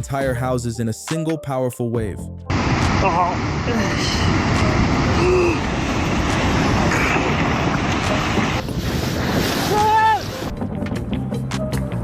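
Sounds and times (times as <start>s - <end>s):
floodwater rushing: 2.5s - 10.6s
person shouting: 9.7s - 10.3s.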